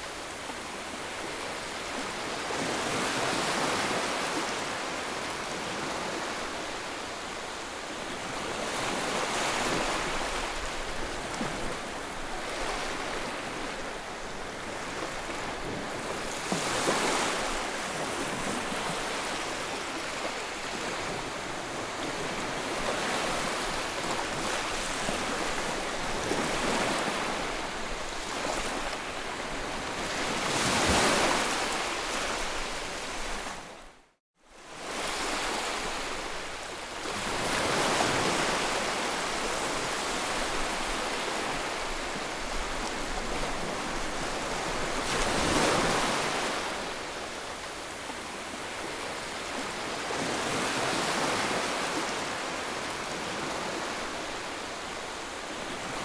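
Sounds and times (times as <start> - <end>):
ocean waves breaking: 8.2 - 33.8, 37.0 - 56.0.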